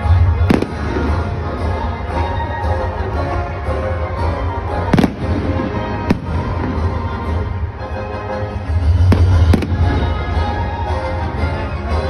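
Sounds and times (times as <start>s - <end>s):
fireworks bangs: 0.4s - 1.5s, 4.9s - 7.2s, 9.0s - 10.3s.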